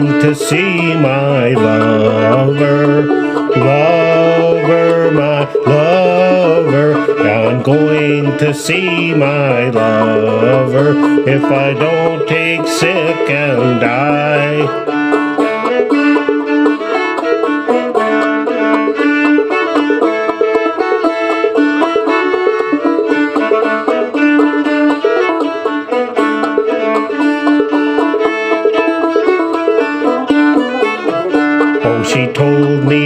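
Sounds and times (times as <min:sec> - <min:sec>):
fiddle held notes: 0:00.0 - 0:33.0
plucked banjo rhythm: 0:00.0 - 0:33.0.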